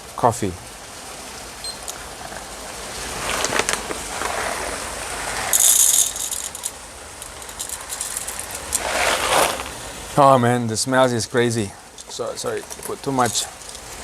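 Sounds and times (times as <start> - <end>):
coffee beans rattling into cup: 5.5 - 9.8, 12.6 - 13.9.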